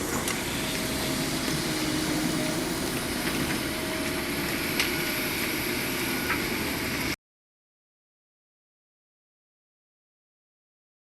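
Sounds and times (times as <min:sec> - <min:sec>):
roadworks machinery engine running: 0:00.0 - 0:07.2.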